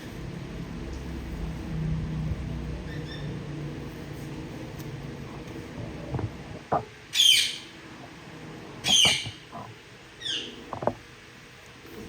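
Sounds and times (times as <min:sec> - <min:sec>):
parrot calling: 0:07.1 - 0:07.7, 0:08.8 - 0:10.9
light knocks: 0:10.7 - 0:11.0.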